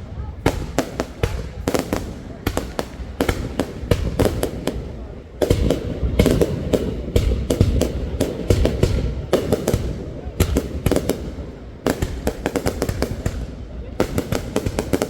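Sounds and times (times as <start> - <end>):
fireworks cracking and banging: 0.0 - 15.0.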